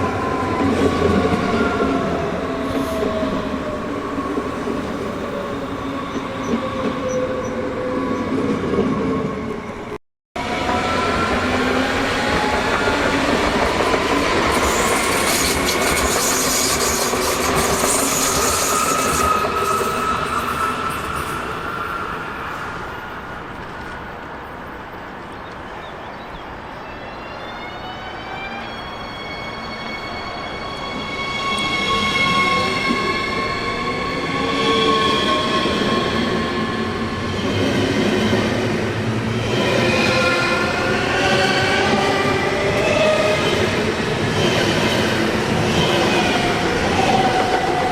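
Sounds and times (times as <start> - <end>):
electric train rumbling: 0.0 - 47.9
high-pitched train tones: 26.9 - 38.5.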